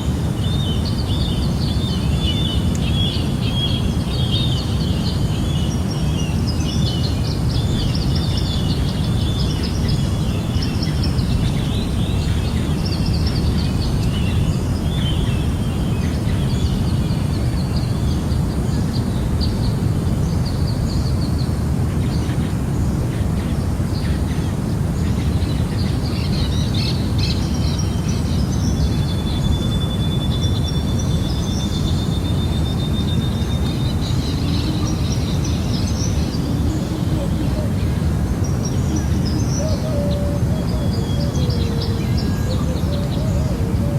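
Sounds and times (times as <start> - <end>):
birds chirping and calling: 32.7 - 43.9.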